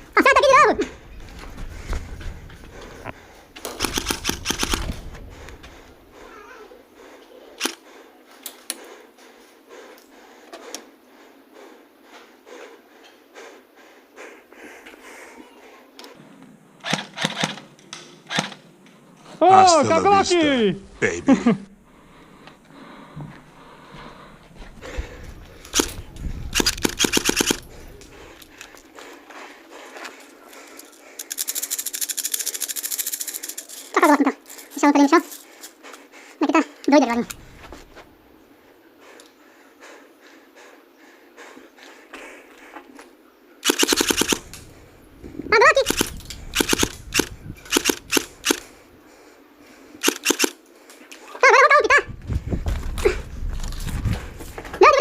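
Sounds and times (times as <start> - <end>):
airsoft gunshots: 3.7 - 5.0, 25.7 - 27.6, 43.6 - 44.5, 45.8 - 48.7, 50.0 - 50.6
airsoft gun shots: 43.6 - 44.5.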